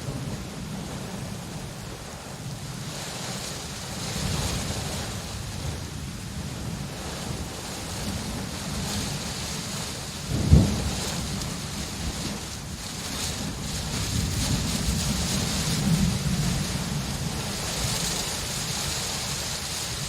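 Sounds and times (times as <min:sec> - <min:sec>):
steady rain: 0:00.0 - 0:20.0
thunder clap: 0:04.0 - 0:18.8.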